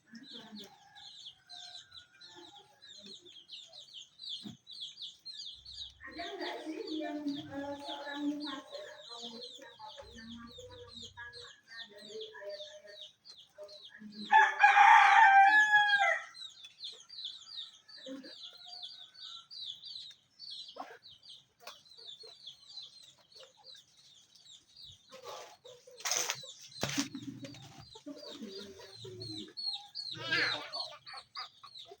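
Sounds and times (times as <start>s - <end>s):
chickens clucking: 0.0s - 32.0s
rooster crowing: 14.3s - 16.4s.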